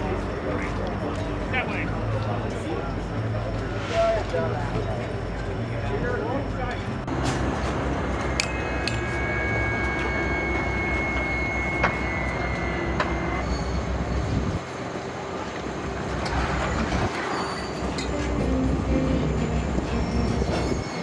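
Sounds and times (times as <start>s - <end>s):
train rumbling along track: 0.0s - 21.0s
high squeal: 8.4s - 14.6s, 16.2s - 21.0s.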